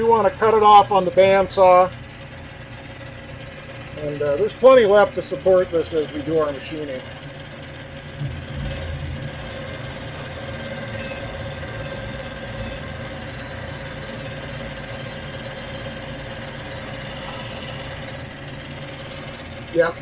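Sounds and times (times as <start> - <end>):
metal lathe drone and whine: 0.0 - 20.0.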